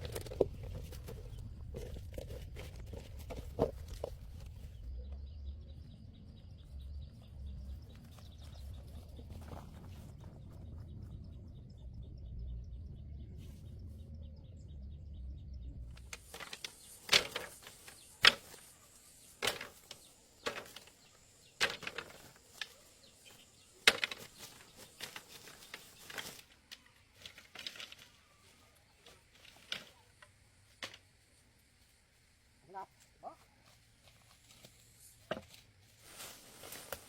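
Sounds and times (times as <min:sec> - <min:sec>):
low rumble: 0:04.2 - 0:16.0.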